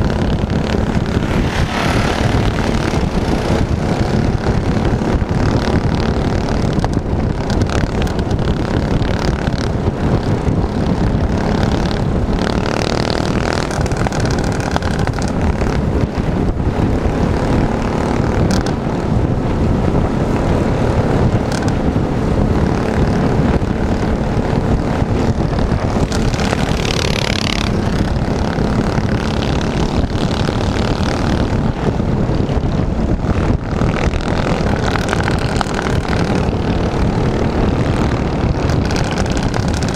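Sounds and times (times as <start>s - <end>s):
heavy low-pitched noise: 0.0s - 39.9s
minibike engine running: 0.0s - 39.9s.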